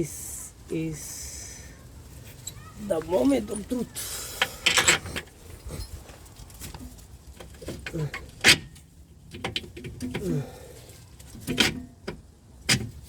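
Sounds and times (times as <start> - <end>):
metal scraping and clicking: 4.4 - 10.3, 11.2 - 13.0.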